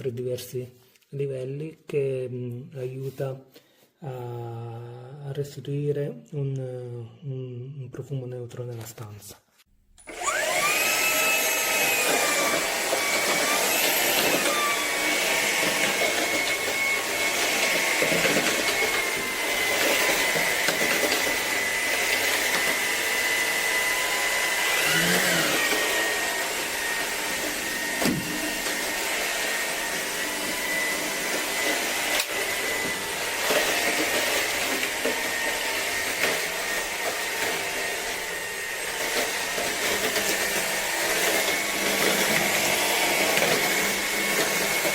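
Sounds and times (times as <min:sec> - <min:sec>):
vacuum motor whine: 0:10.0 - 0:44.9.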